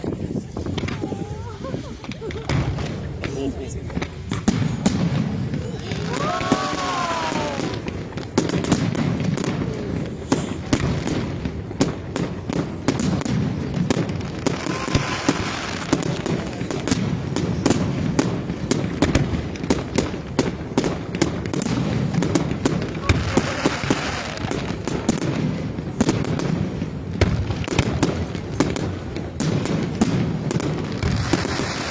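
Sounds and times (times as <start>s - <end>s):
fireworks bangs and crackles: 0.0s - 31.9s
falling firework whistle: 4.5s - 8.1s, 14.5s - 16.1s.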